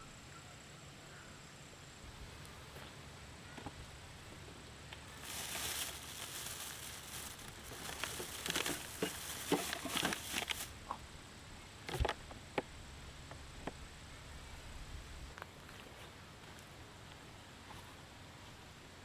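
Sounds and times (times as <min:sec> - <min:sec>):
rustling and crinkling: 0:03.6 - 0:10.9.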